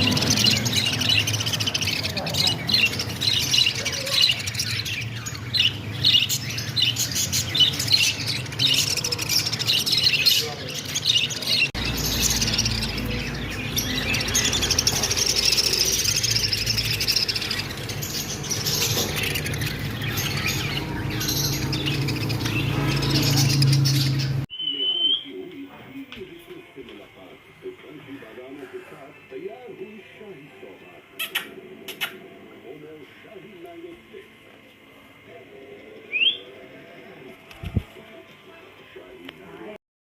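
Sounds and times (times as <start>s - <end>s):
parrot chirping and squawking: 0.0s - 24.5s, 31.2s - 32.2s.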